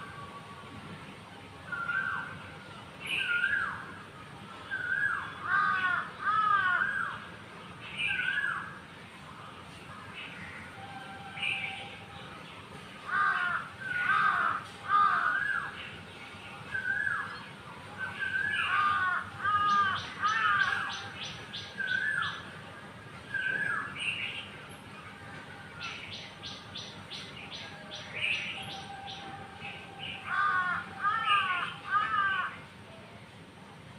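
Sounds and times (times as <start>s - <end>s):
harsh bird calls: 4.7s - 8.8s, 13.0s - 22.6s, 25.8s - 32.7s.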